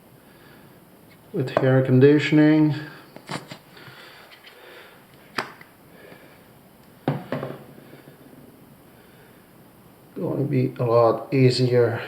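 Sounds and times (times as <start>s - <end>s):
faint handling of parts: 3.0s - 7.9s.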